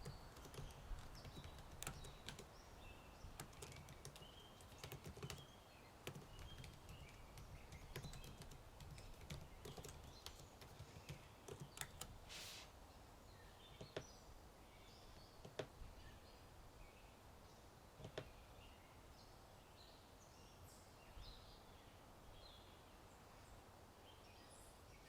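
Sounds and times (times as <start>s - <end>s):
typing on a computer keyboard: 0.0s - 2.5s, 3.3s - 12.2s, 18.0s - 18.3s
birds chirping: 0.0s - 25.0s
brief hiss of noise: 12.3s - 12.8s.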